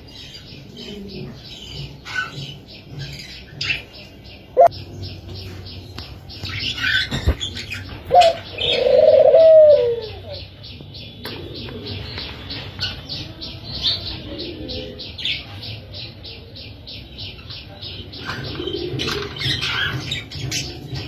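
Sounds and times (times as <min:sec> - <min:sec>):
doves cooing: 0:00.3 - 0:03.9, 0:06.8 - 0:10.6, 0:11.2 - 0:15.4, 0:18.0 - 0:21.0.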